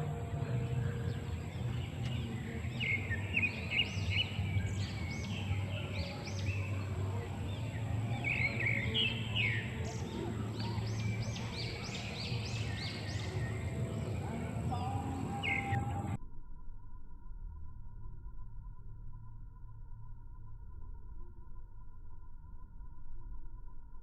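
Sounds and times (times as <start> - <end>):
small birds chirping: 0.0 - 16.2
steady low hum: 0.0 - 24.0.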